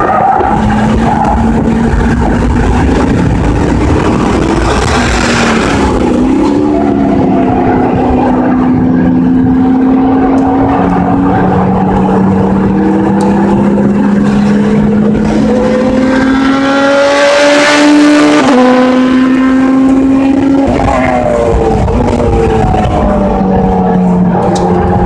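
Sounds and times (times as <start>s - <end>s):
car engine running hard: 0.0s - 25.0s.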